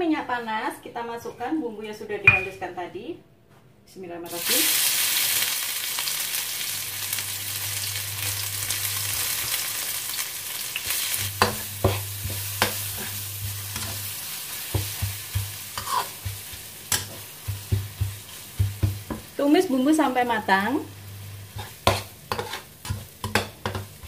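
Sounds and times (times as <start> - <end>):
spice paste sizzling in oil: 4.3 - 24.0
metal spatula scraping wok: 10.8 - 17.3, 21.4 - 24.0.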